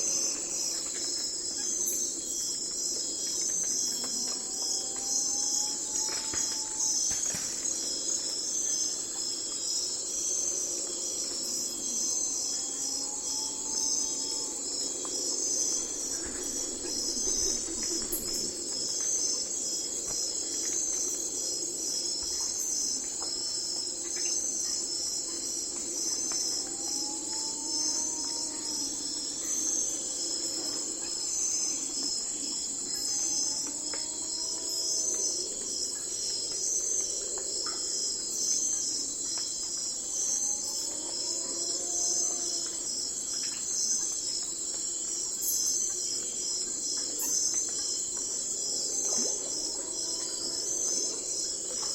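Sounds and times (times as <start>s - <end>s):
low continuous drone: 0.0s - 23.5s
crickets trilling: 0.0s - 51.9s.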